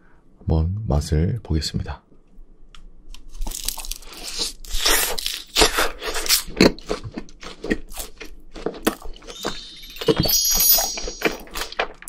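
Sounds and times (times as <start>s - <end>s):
biting and chewing food: 3.2s - 12.0s.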